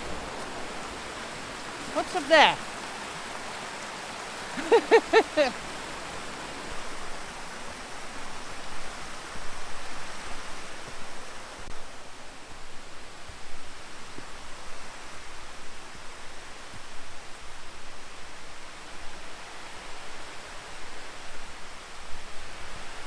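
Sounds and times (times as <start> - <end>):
stream flowing over rocks: 0.0 - 15.9.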